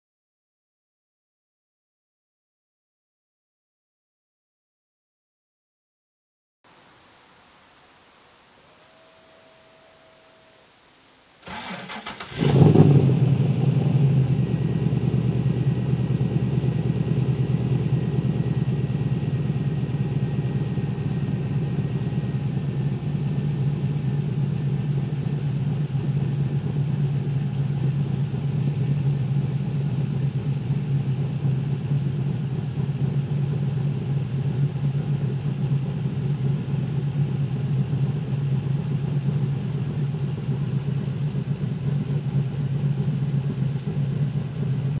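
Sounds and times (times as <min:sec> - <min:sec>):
engine starter cranking: 0:11.4 - 0:13.1
car engine revving and idling: 0:11.4 - 0:45.0.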